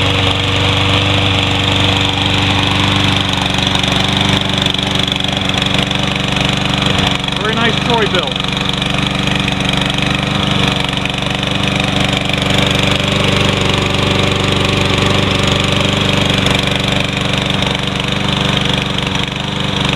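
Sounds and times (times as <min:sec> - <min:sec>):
lawn mower engine running: 0:00.0 - 0:19.9.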